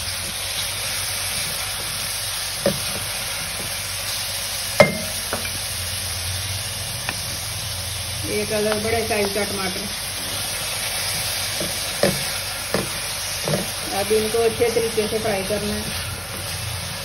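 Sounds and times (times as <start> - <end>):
food sizzling in oil: 0.0 - 17.0
wooden spatula knocking on pan: 4.8 - 5.6, 11.6 - 13.7.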